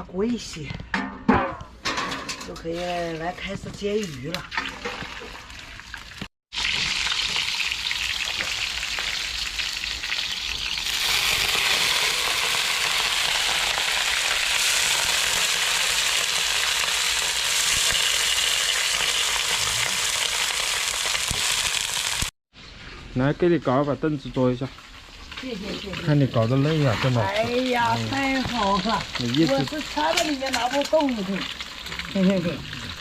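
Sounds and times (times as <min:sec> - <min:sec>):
fish frying in hot oil: 0:04.9 - 0:22.3, 0:24.2 - 0:33.0.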